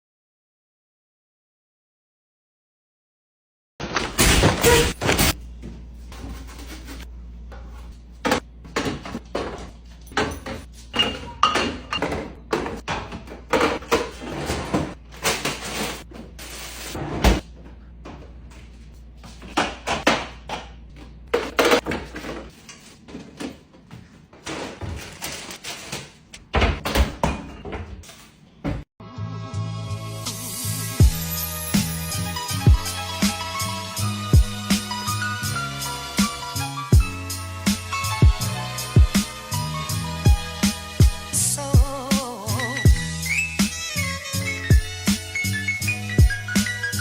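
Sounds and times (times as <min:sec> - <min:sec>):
fridge hum: 0:03.8 - 0:28.8
plastic containers clattering: 0:08.2 - 0:17.4, 0:19.2 - 0:28.4.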